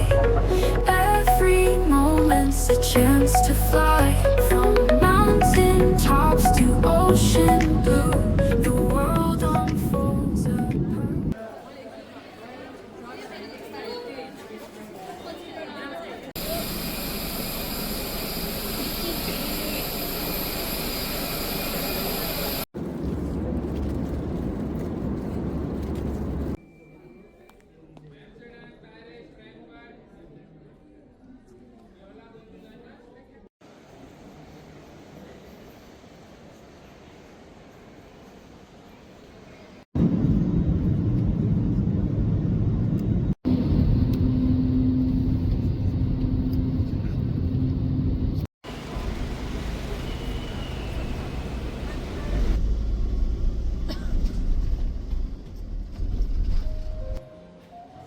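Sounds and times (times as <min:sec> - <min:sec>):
jet airliner deep rumble: 0:40.0 - 0:48.4
vehicle rumble with hum: 0:49.4 - 0:56.6.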